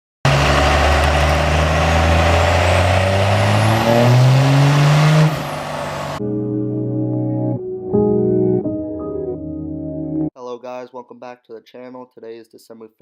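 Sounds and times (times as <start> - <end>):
diesel engine accelerating: 0.2 - 6.2
ambient music: 4.1 - 10.4.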